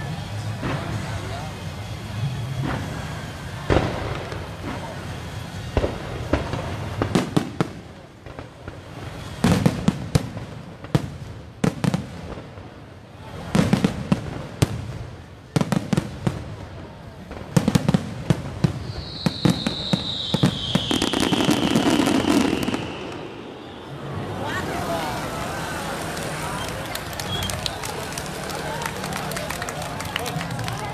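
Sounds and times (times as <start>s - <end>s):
fireworks bangs and crackles: 0.0s - 30.9s
high falling whistle: 18.8s - 24.6s.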